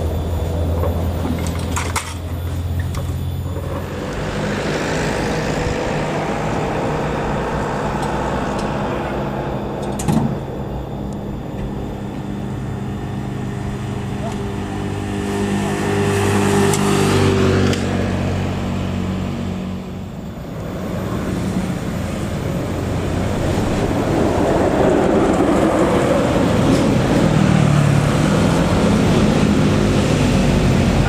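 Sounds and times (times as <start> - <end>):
vehicle approaching: 0.0 - 31.0
vehicle engine running: 0.0 - 31.0.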